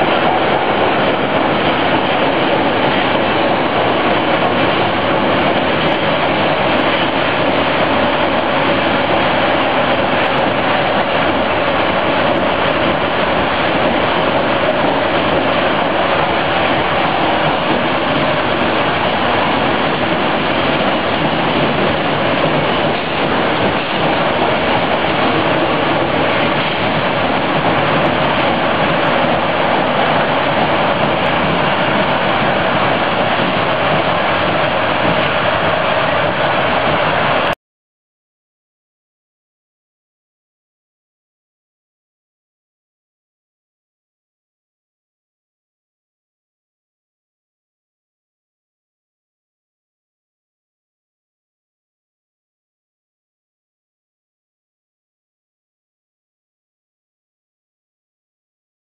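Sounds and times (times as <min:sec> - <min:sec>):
subway car wheels on rail: 0:00.0 - 0:37.6.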